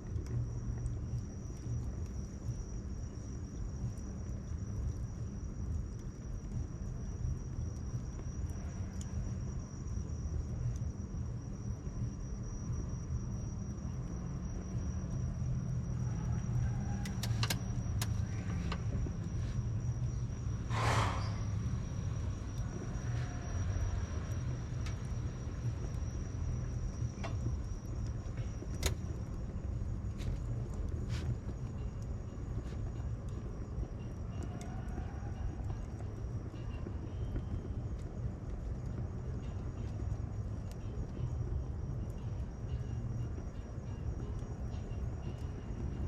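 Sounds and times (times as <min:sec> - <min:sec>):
bonfire crackling: 0:00.0 - 0:46.0
city traffic rumble: 0:08.4 - 0:46.0
fire pop and hiss: 0:17.1 - 0:23.2, 0:27.0 - 0:31.7.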